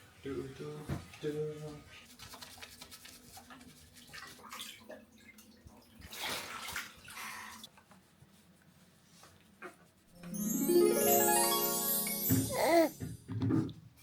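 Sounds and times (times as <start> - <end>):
shower water splashing: 2.1 - 7.7.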